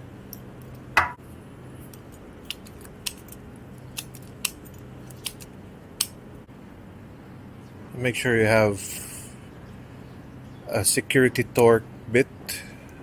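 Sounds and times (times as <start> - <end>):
metallic clicks of keys: 1.9 - 6.1.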